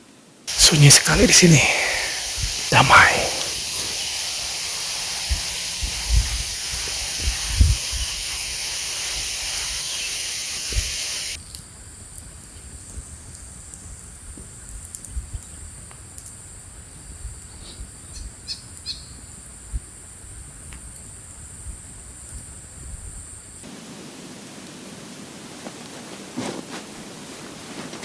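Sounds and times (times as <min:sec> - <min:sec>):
loud steady hiss: 0:00.5 - 0:11.4
wind rumble on microphone: 0:02.2 - 0:02.7, 0:03.6 - 0:11.4
bird chirps: 0:08.0 - 0:11.4.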